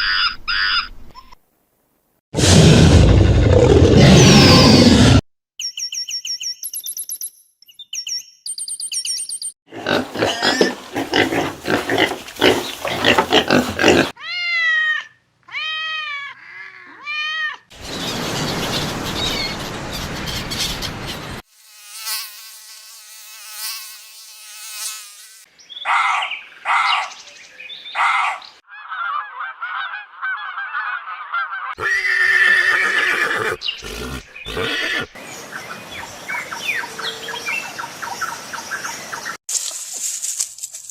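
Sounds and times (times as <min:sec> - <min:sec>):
rasping animal calls: 0:09.7 - 0:14.2, 0:28.1 - 0:35.1
repeated arching animal calls: 0:09.7 - 0:14.4, 0:28.0 - 0:35.2.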